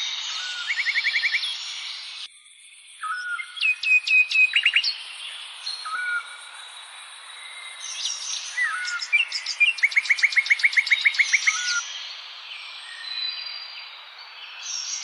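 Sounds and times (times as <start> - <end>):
songbirds chirping and singing: 0.0 - 15.0.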